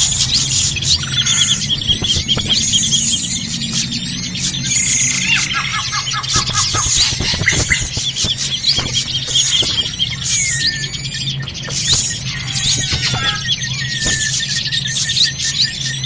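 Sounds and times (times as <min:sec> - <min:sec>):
bird chirps and whistles: 0:00.2 - 0:16.0.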